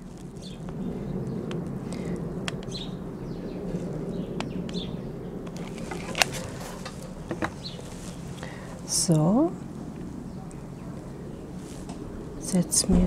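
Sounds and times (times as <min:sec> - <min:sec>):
birds chirping: 0:00.0 - 0:13.0
steady low hum: 0:00.0 - 0:13.0.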